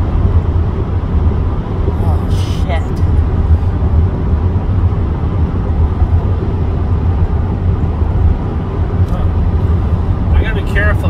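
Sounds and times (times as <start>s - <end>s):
car driving heard from inside: 0.0s - 11.0s.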